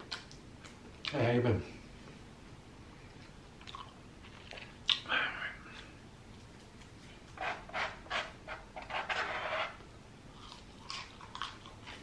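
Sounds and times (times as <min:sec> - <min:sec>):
chewing french fries: 0:00.0 - 0:01.2, 0:03.2 - 0:05.1, 0:10.3 - 0:12.0.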